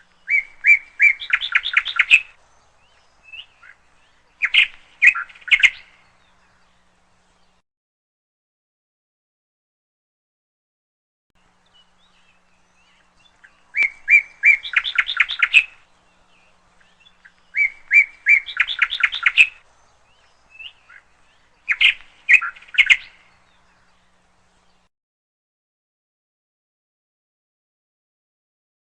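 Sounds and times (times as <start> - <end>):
canary chirping: 0.2 - 2.4, 12.3 - 15.8, 16.8 - 19.6, 21.6 - 23.2.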